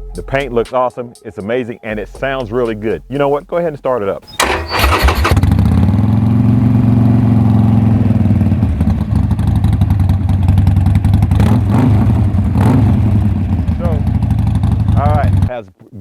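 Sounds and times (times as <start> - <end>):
motorcycle engine idling: 4.3 - 11.6, 12.2 - 15.5.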